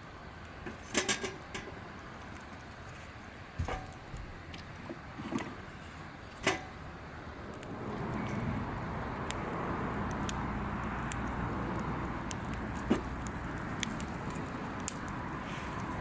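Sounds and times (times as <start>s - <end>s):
wood fire crackling: 0.0s - 16.0s
steady rushing noise: 5.6s - 16.0s.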